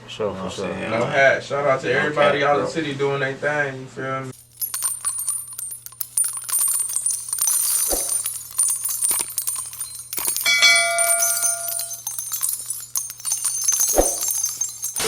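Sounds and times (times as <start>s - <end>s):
metallic clicking and jingling: 4.4s - 15.0s.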